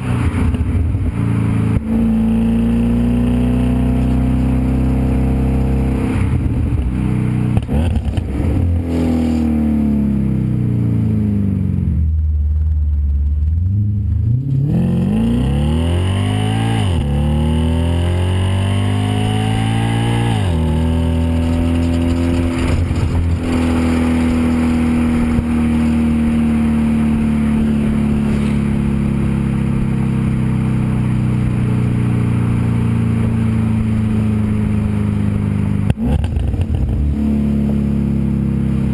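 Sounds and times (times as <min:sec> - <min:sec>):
car engine and exhaust driving: 0:00.0 - 0:38.9.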